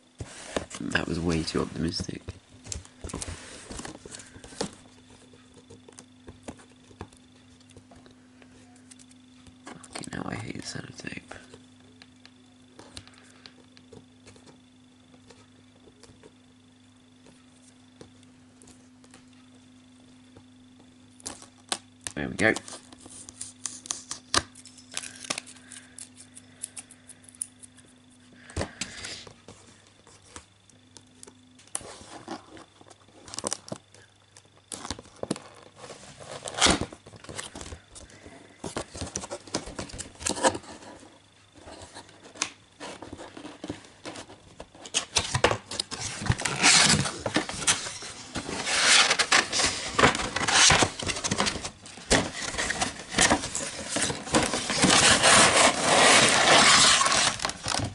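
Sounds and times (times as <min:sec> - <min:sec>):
cardboard and plastic tearing: 0:34.7 - 0:37.6, 0:44.8 - 0:57.9.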